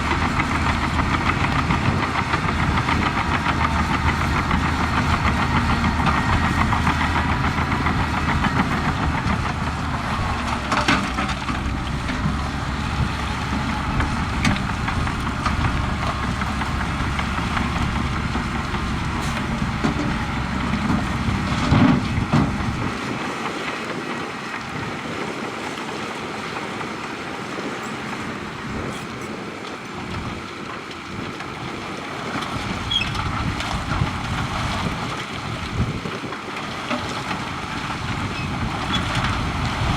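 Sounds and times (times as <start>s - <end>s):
diesel construction machinery running: 0.0s - 39.9s.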